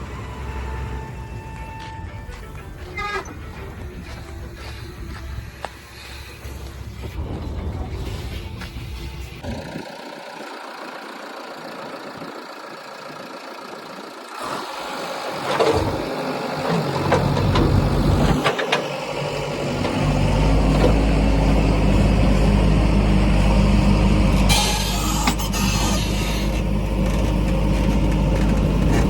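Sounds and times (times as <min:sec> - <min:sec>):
diesel engine drone: 0:00.0 - 0:29.0
engine knocks: 0:15.4 - 0:22.8, 0:24.3 - 0:29.0.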